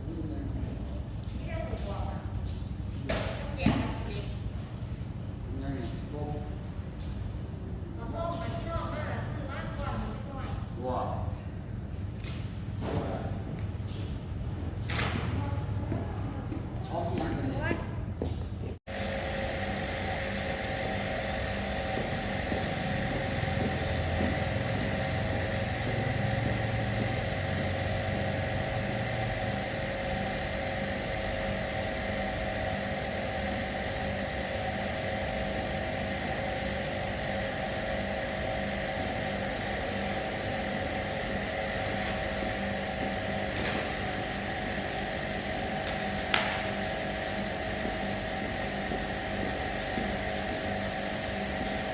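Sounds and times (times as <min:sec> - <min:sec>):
motor humming: 0:18.9 - 0:51.9.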